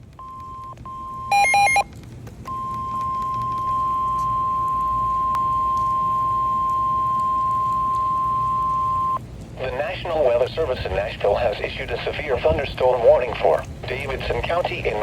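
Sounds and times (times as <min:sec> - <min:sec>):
chirping multi-tone beep: 0:00.3 - 0:01.8
steady loud alarm tone: 0:00.3 - 0:01.9, 0:02.5 - 0:09.2.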